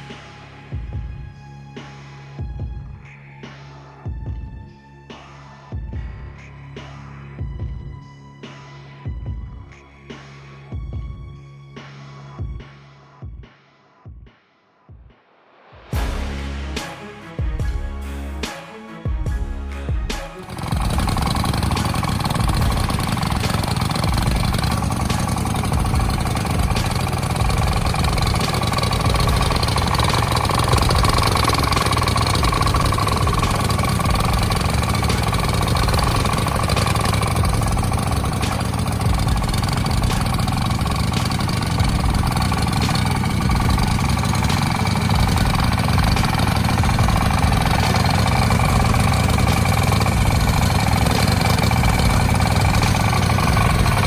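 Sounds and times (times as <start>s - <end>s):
heavy engine running: 20.4s - 54.0s.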